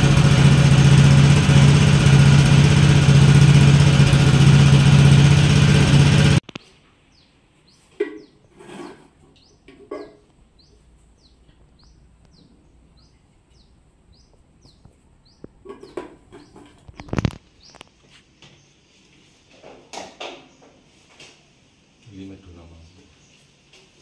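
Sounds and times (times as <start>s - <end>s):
bird chirping: 10.5s - 18.8s.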